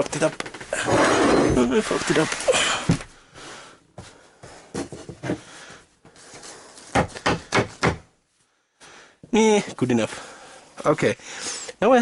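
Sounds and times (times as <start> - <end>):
board rubbing and scraping on wood: 0.8 - 2.4.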